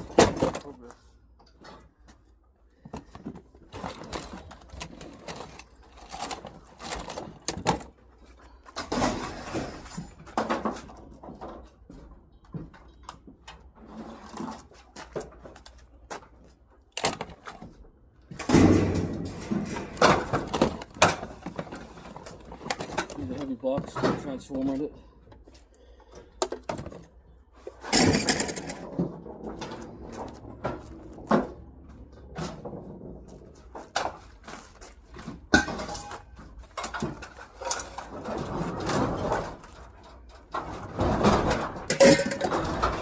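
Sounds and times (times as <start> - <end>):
scrap items knocking and scraping: 18.4 - 43.0.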